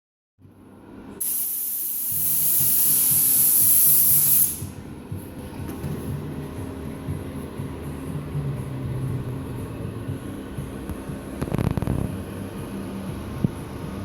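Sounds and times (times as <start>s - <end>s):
low machine hum: 0.4s - 14.0s
spraying hiss: 1.2s - 4.7s.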